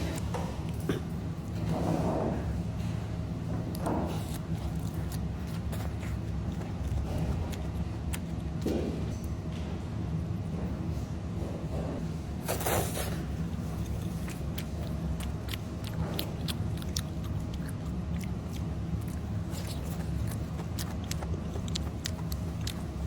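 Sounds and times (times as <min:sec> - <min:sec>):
utensils clicking and chewing: 0:03.6 - 0:08.8, 0:13.4 - 0:23.0.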